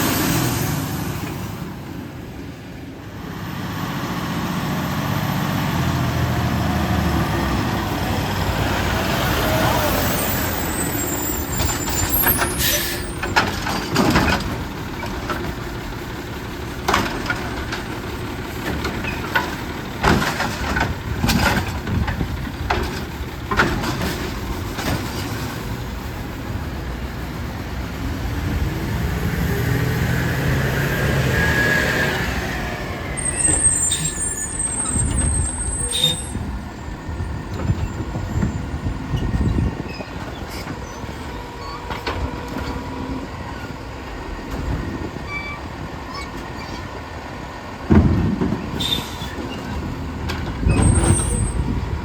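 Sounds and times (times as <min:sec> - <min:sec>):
diesel engine running: 0:00.0 - 0:52.0
trash and carts banging: 0:09.5 - 0:26.0, 0:33.1 - 0:52.0.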